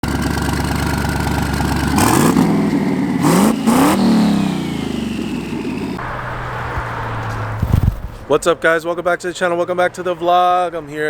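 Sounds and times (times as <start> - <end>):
car engine idling and revving: 0.0 - 8.2.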